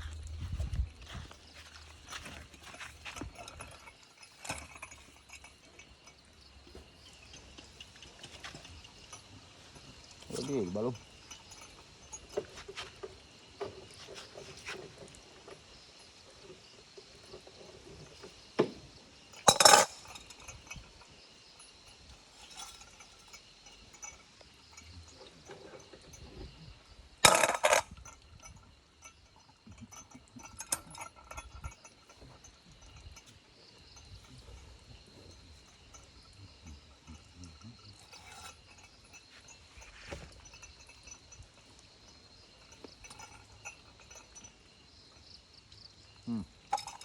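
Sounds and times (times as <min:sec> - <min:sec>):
tools clinking on cutting surface: 0:19.4 - 0:20.8, 0:27.2 - 0:29.2.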